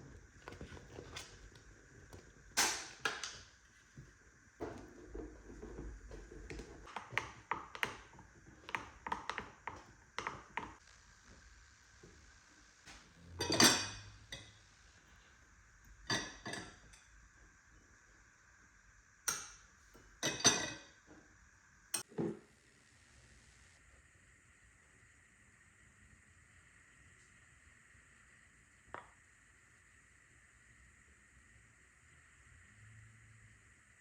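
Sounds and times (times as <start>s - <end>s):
kitchenware knocking and clattering: 13.4s - 14.4s, 16.1s - 17.0s, 20.2s - 20.8s
kitchenware clinking: 13.4s - 14.5s, 16.1s - 17.1s, 19.3s - 21.0s.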